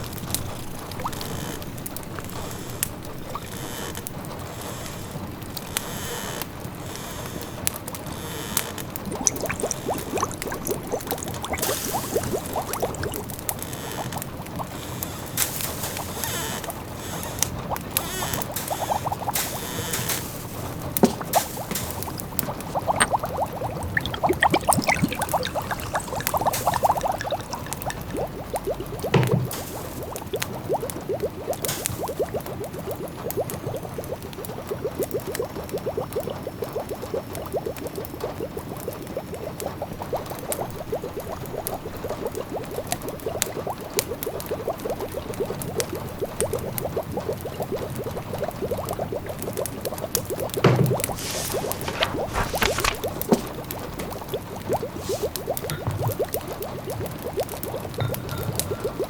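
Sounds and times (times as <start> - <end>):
pot simmering and bubbling: 8.8 - 59.0
wood fire crackling: 9.0 - 32.8
rain hissing: 9.1 - 13.4, 14.0 - 30.7, 31.6 - 32.4, 50.9 - 54.0, 54.8 - 55.5.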